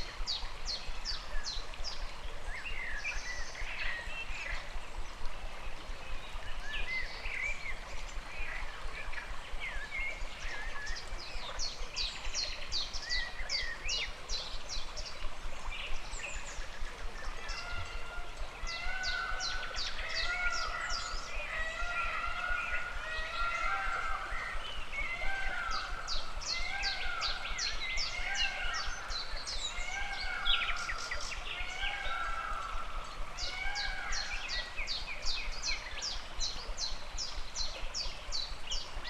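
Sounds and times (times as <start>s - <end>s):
flowing stream: 0.0s - 39.0s
birds singing and calling: 6.1s - 39.0s
low drawn-out bird calls: 16.5s - 36.2s.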